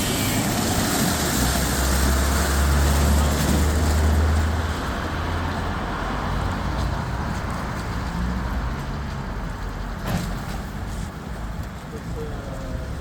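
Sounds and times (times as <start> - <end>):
car wash machine running: 0.0 - 4.5.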